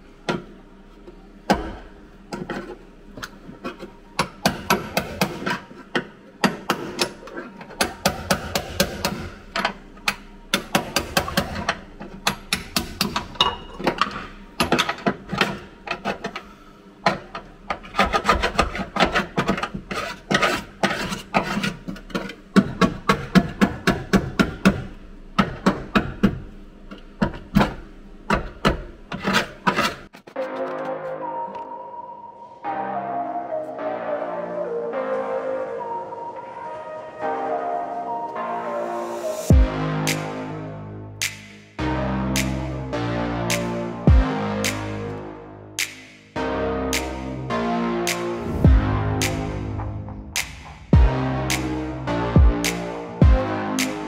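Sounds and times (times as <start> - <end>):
tools rasping on metal: 17.7 - 23.4.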